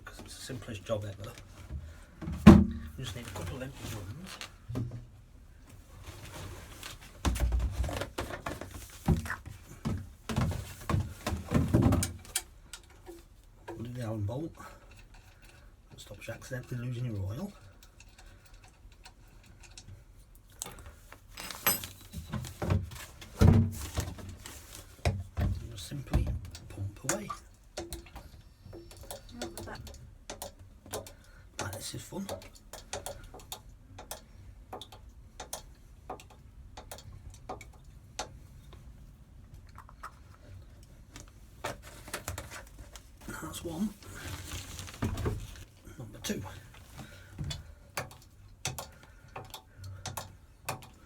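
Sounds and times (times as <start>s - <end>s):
metallic clicks and knocks of tools: 26.4s - 38.4s, 47.4s - 51.0s.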